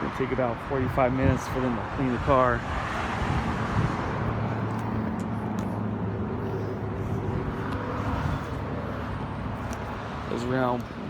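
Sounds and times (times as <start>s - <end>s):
outdoor traffic noise: 0.0s - 11.0s
vehicle engine humming: 0.0s - 11.0s.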